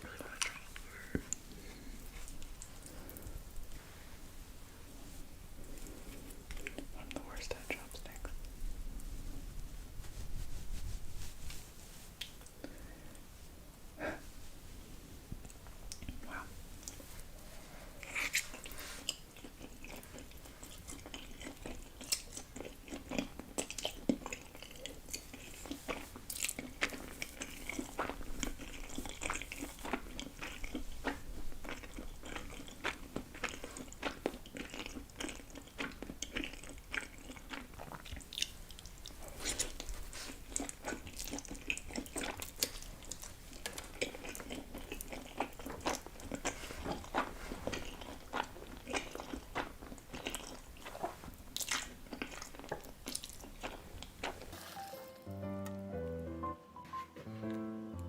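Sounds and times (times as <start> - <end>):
chewing crunchy food: 0.0 - 3.8, 5.6 - 8.6, 17.9 - 54.6.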